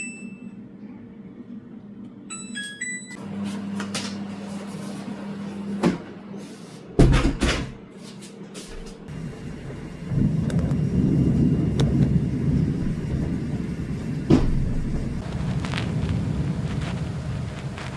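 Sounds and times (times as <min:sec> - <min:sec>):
steady appliance hum: 0:00.0 - 0:08.0, 0:08.6 - 0:17.9
appliance electronic beeps: 0:02.3 - 0:03.3.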